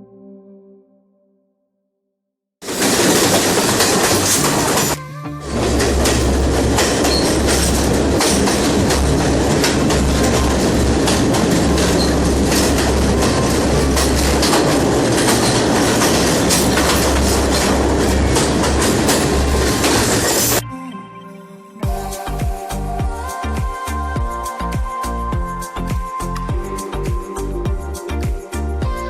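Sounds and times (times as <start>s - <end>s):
train rumbling: 2.6s - 20.6s
wheels clicking over rail joints: 2.6s - 20.6s.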